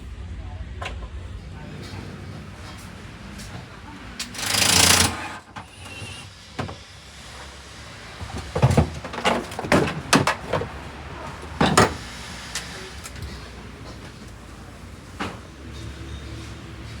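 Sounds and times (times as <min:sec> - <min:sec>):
low steady hum: 0:00.0 - 0:04.4.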